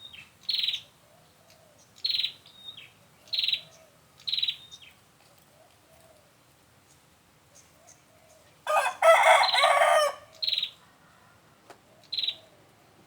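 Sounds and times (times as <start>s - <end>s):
rooster crowing: 8.7s - 10.3s.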